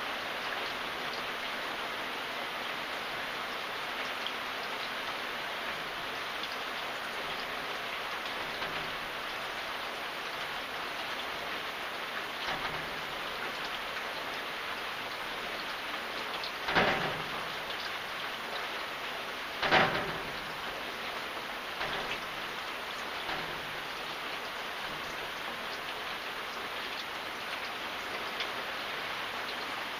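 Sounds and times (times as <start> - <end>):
rain pattering on surfaces: 0.0 - 29.9
thump: 16.7 - 17.3, 19.6 - 20.3.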